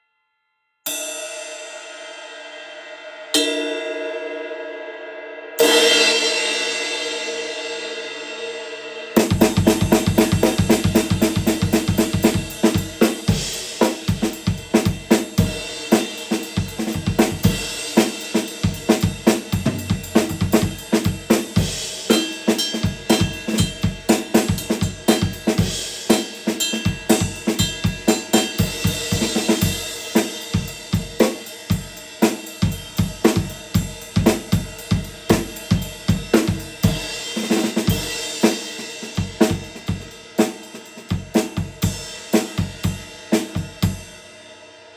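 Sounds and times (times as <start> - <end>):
ride cymbal ringing: 10.0 - 40.1.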